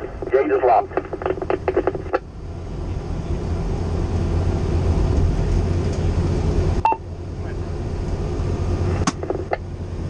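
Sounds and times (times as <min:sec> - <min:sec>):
diesel engine accelerating: 0:02.2 - 0:10.0.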